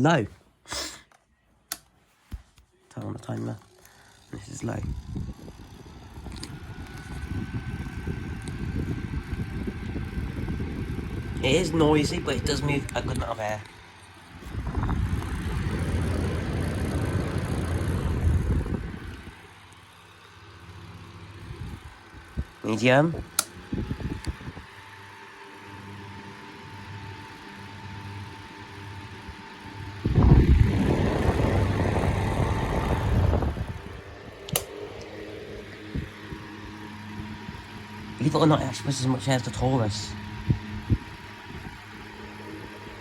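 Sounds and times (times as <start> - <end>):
fan humming: 0.0 - 43.0
fan airflow rumble on microphone: 2.3 - 43.0
loud rumbling noise: 14.4 - 19.4, 30.0 - 34.4
sharp click: 34.5 - 34.8.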